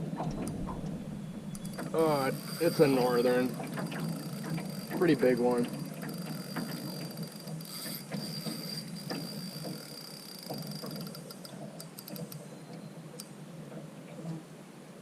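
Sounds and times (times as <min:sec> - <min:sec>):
fishing reel ticking: 0:01.5 - 0:12.4.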